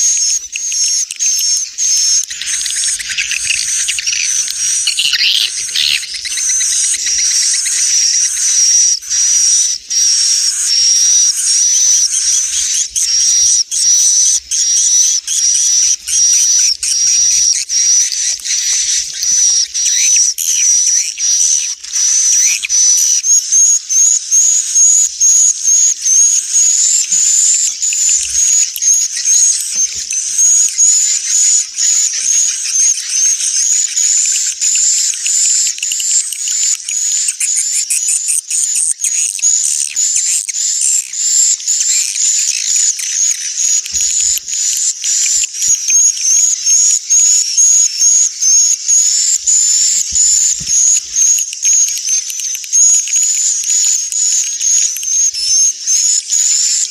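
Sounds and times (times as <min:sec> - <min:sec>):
swiftlets twittering: 0:39.9 - 0:55.3.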